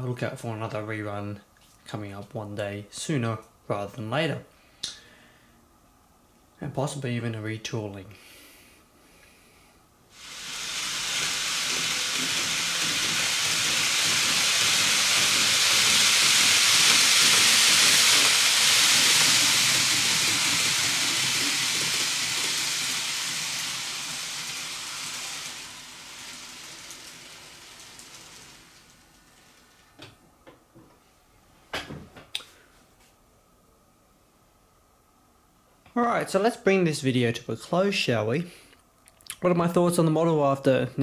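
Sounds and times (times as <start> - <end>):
train passing: 10.2 - 27.0.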